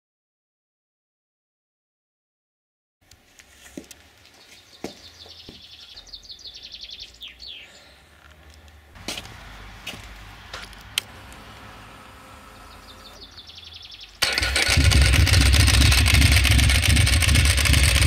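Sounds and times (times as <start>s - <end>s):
birds chirping and trilling: 4.2s - 9.7s, 10.3s - 14.8s.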